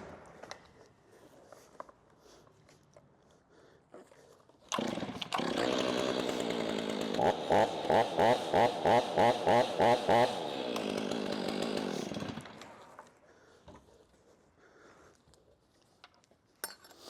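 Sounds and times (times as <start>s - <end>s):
chainsaw engine starting and revving: 4.7s - 13.1s.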